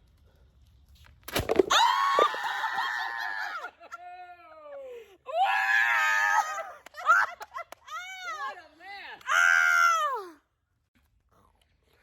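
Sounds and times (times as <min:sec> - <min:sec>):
watermelon bursting: 0:01.3 - 0:02.4.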